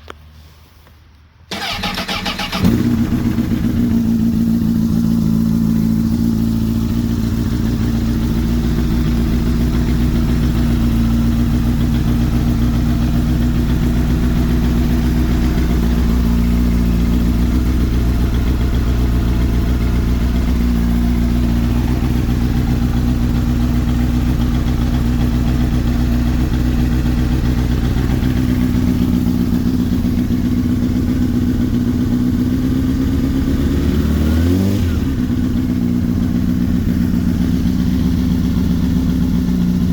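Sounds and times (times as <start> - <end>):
starter cranking: 1.5 - 2.9
motorcycle engine idling: 1.5 - 39.9.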